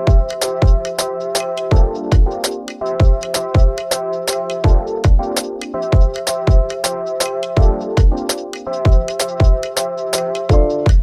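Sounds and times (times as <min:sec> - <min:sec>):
kick drum: 0:00.0 - 0:00.9, 0:01.7 - 0:02.4, 0:03.0 - 0:03.8, 0:04.6 - 0:06.7, 0:07.6 - 0:08.2, 0:08.9 - 0:09.7, 0:10.5 - 0:11.0.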